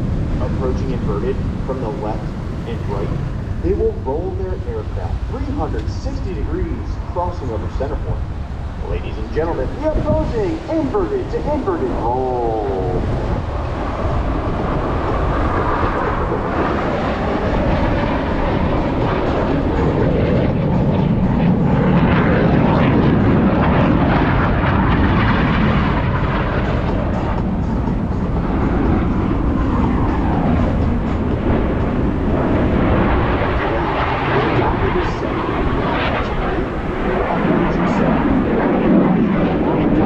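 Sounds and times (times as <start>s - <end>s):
jet engines roaring: 0.0s - 40.0s.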